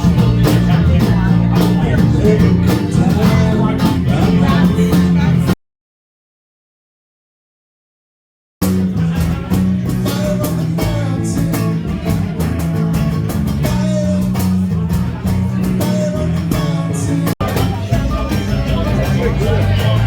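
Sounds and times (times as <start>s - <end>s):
person singing: 0.0s - 5.6s, 9.0s - 12.8s, 13.5s - 20.0s
rock band playing: 0.0s - 5.6s, 8.6s - 20.0s.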